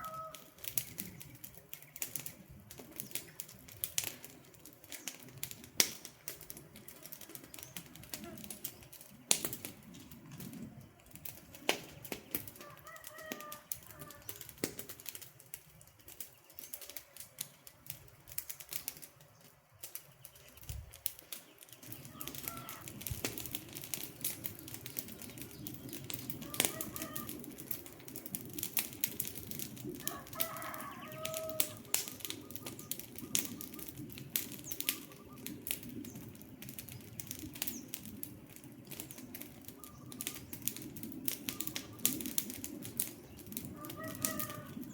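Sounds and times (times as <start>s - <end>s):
wood fire crackling: 0.0s - 44.9s
bird calls: 18.8s - 27.4s, 30.1s - 38.0s, 38.7s - 42.4s.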